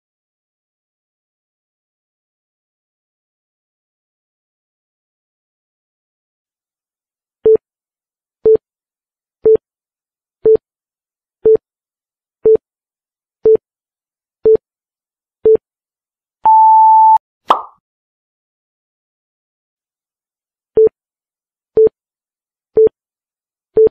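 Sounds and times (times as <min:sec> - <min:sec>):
long high beep: 0:16.5 - 0:17.2
short electronic beeps: 0:16.5 - 0:17.2.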